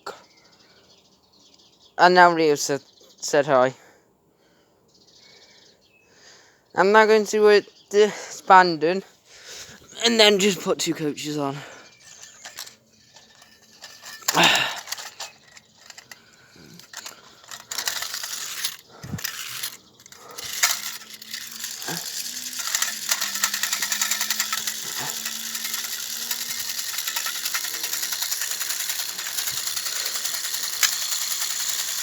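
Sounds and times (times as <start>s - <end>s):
toy train handled clicks and knocks: 10.2s - 32.0s
clockwork motor whirring: 11.2s - 32.0s.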